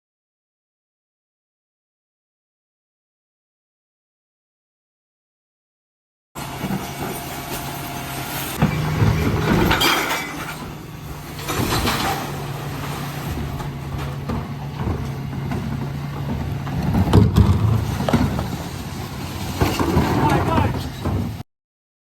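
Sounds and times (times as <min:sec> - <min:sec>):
refuse truck running: 0:06.4 - 0:21.4.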